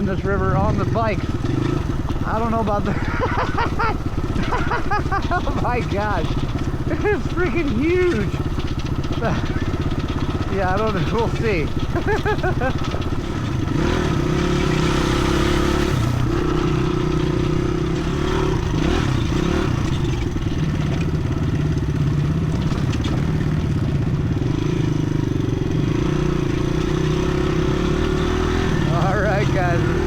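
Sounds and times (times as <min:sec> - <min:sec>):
dirt bike engine running: 0:00.0 - 0:30.0.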